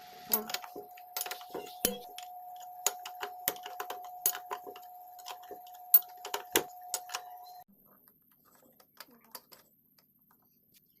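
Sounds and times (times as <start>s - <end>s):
steady hum: 0.0s - 7.7s.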